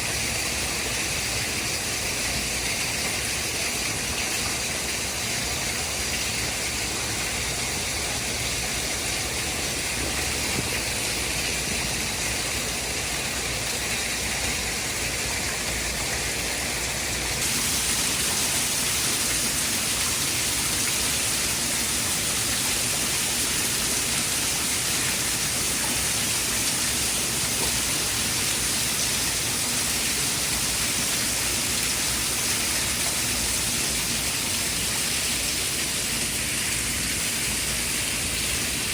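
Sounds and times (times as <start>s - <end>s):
steady rushing white noise: 6.5s - 29.9s.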